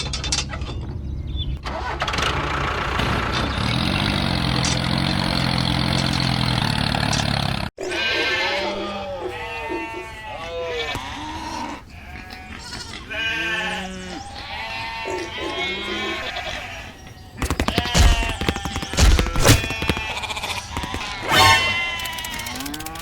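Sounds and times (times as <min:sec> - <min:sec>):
wavering bleat-like calls: 0:07.8 - 0:23.0
clatter of rapid clicks: 0:17.4 - 0:20.2, 0:21.9 - 0:23.0.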